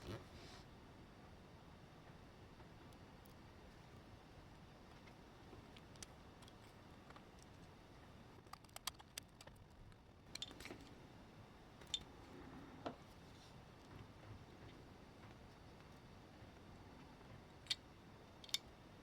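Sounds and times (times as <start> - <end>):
faint small clicks and taps: 8.4 - 10.9.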